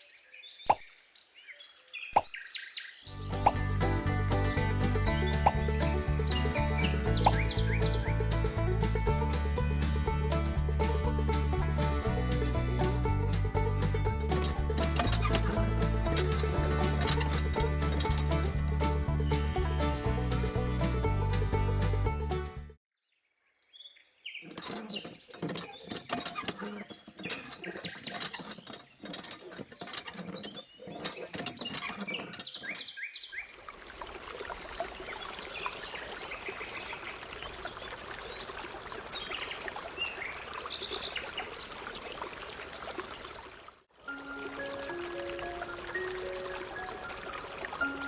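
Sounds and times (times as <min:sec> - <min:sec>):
birds chirping: 0:01.5 - 0:08.6, 0:19.2 - 0:22.4
sharp clicks and knocks: 0:13.3 - 0:18.5.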